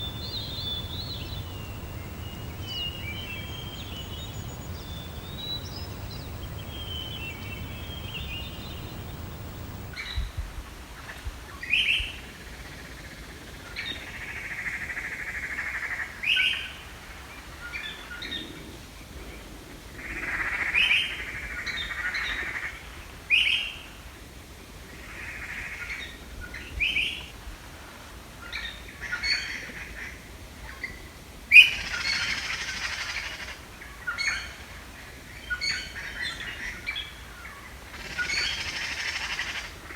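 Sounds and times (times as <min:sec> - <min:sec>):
bird giving sharp rising calls: 0:00.0 - 0:10.0
birds twittering: 0:00.0 - 0:10.0
buzzy bird trill: 0:00.0 - 0:10.0.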